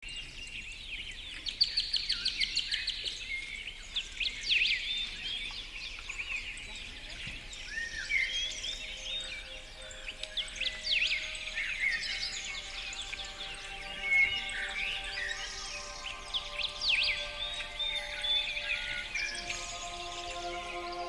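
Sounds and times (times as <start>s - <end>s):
forest birds singing: 0.0s - 21.0s.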